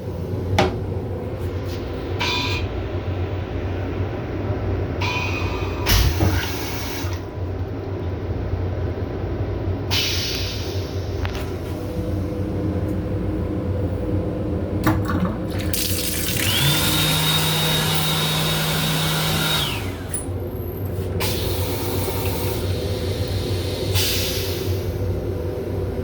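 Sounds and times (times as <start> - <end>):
steady hum and high whine: 0.0 - 16.2, 19.8 - 26.0
toilet flushing: 5.0 - 7.7, 11.8 - 25.0.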